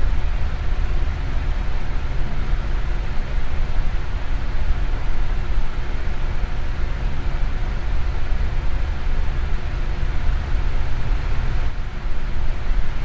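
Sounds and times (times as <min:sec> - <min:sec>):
electric fan blowing: 0:00.0 - 0:13.0
faint motor hum: 0:00.0 - 0:13.0.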